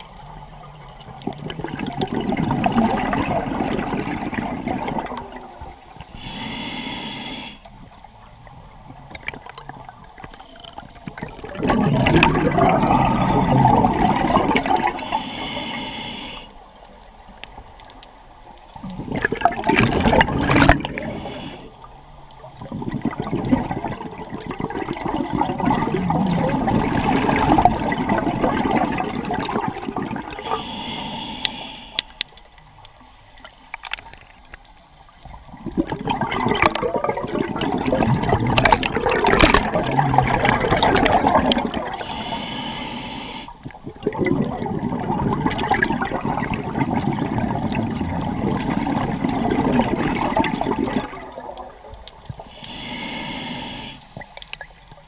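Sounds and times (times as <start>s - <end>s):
exhaled bubbles gurgling: 0.0s - 17.8s, 18.7s - 32.8s, 33.8s - 55.0s
scuba diver breathing underwater: 1.3s - 7.8s, 10.2s - 16.7s, 18.7s - 21.9s, 24.4s - 32.4s, 35.6s - 55.0s.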